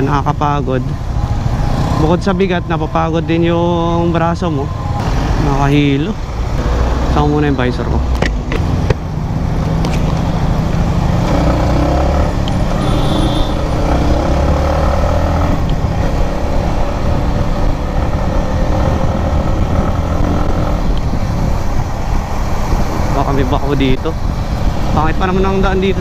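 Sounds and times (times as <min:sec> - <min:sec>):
road and wind rush: 0:00.0 - 0:26.0
motorcycle engine accelerating: 0:06.4 - 0:23.4.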